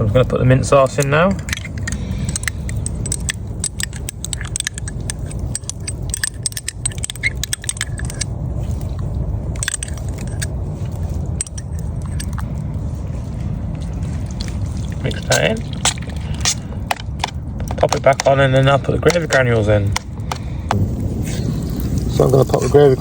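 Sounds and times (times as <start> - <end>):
low rumble: 0.0 - 23.0.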